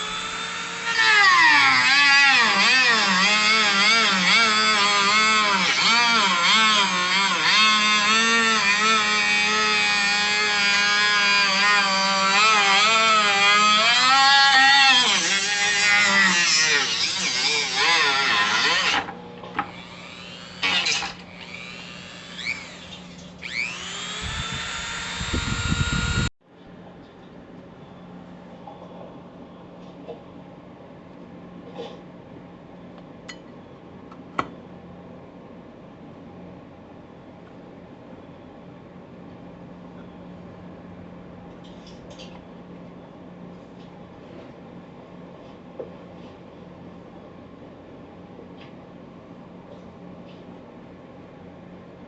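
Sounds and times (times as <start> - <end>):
drill press motor whine: 0.0 - 26.3.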